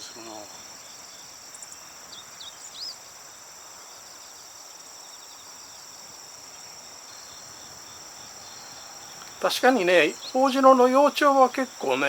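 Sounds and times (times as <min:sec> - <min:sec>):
small bird chirping: 0:00.0 - 0:03.0
crickets trilling: 0:00.0 - 0:12.0.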